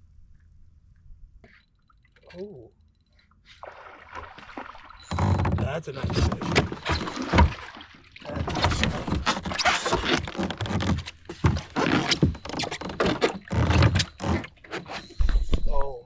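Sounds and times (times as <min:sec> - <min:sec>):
knocks and scrapes on plastic kayak: 0:05.1 - 0:15.7.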